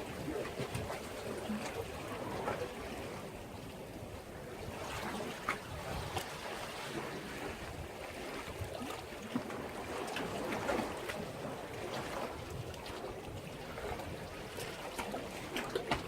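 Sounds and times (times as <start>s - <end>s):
sea waves splashing on breakwater: 0.0s - 16.0s.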